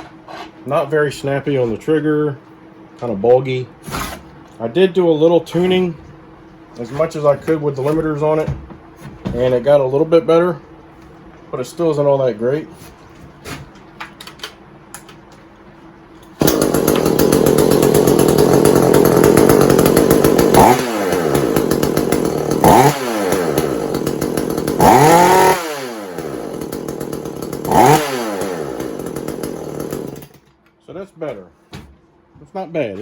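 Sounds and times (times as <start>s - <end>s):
chainsaw revving: 16.4s - 30.4s.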